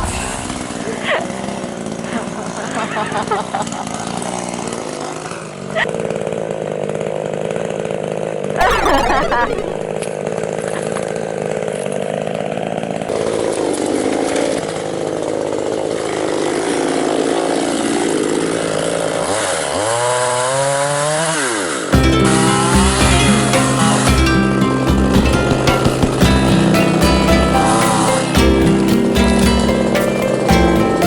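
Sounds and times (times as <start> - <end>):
chainsaw cutting wood: 3.9 - 8.6, 10.4 - 29.4.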